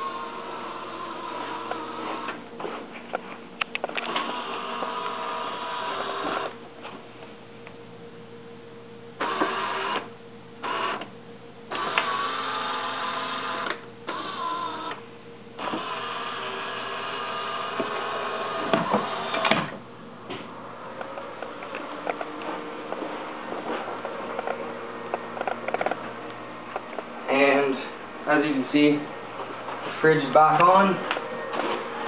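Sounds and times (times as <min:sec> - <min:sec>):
small motors whirring: 0:00.0 - 0:02.4, 0:04.1 - 0:06.5, 0:11.7 - 0:15.0, 0:15.6 - 0:19.6.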